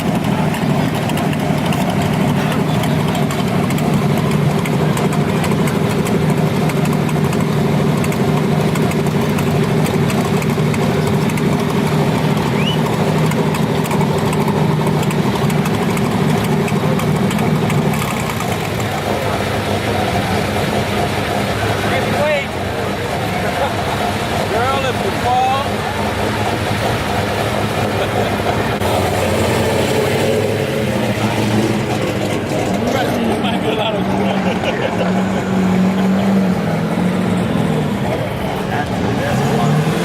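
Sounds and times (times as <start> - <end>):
vehicle engine idling: 0.0 - 40.0.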